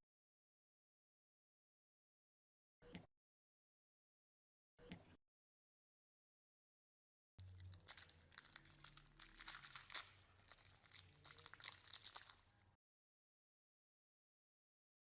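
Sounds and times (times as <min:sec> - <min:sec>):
dense crackling and scratching: 0:07.4 - 0:12.5.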